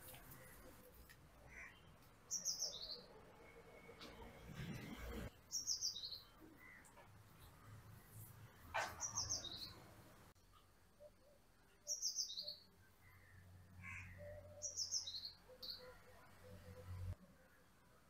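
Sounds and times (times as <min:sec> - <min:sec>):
small bird chirping: 0:01.5 - 0:03.1, 0:05.5 - 0:06.9, 0:08.8 - 0:09.8, 0:11.0 - 0:16.0.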